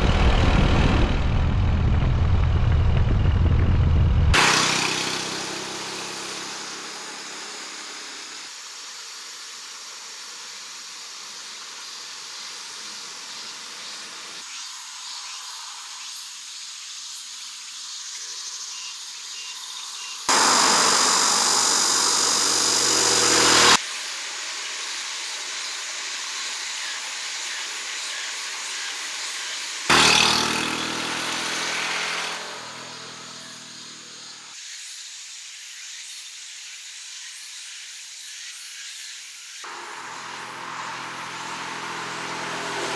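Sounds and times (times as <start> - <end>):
loud rushing noise: 0.0 - 8.4, 20.3 - 23.8
small motorcycle engine running: 4.3 - 9.0, 20.3 - 27.4, 28.5 - 34.6, 39.7 - 42.9.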